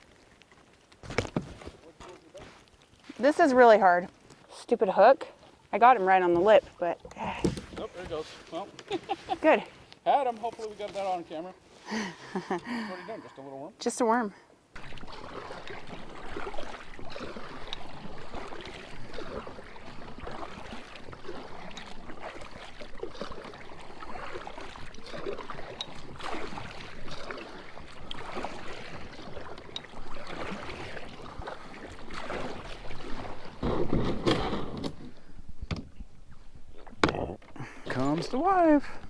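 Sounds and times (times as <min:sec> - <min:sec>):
deep water rush: 0:14.8 - 0:39.0
kayak paddle strokes splashing: 0:14.8 - 0:39.0.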